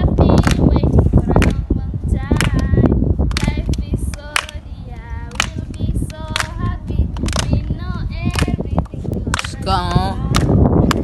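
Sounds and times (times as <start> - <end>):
sharp hand claps: 0.3 - 0.7, 2.3 - 2.7, 3.3 - 4.6, 5.3 - 7.7, 8.3 - 9.6, 10.3 - 11.0
voices singing a drawn-out tune: 3.5 - 11.0.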